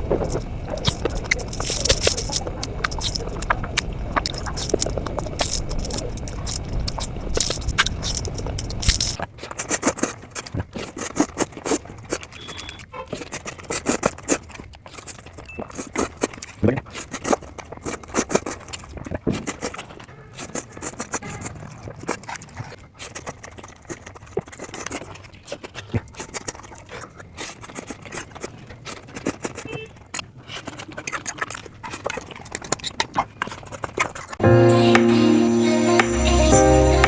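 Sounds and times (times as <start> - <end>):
fast chewing and mouth clicks: 0.0 - 34.4.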